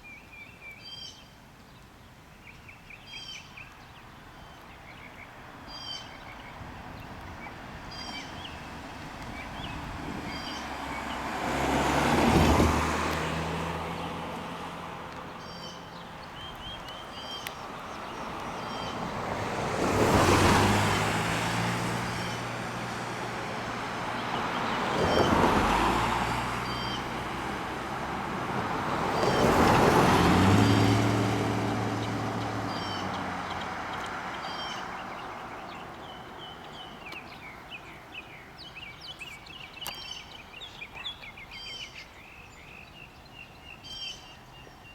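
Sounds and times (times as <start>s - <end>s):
birds chirping: 0.1s - 28.1s, 28.7s - 44.9s
vehicles driving past: 5.2s - 40.9s.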